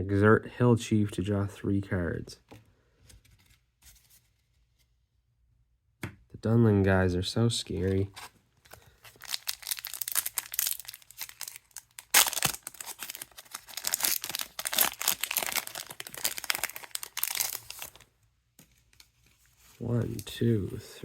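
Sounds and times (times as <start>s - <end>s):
foil wrapper crinkling: 8.7s - 18.1s
foil pack ripping: 9.1s - 18.0s.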